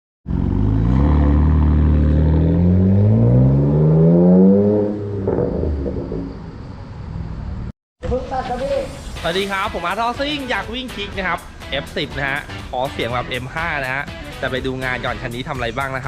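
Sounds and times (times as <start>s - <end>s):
car engine accelerating: 0.3s - 7.7s.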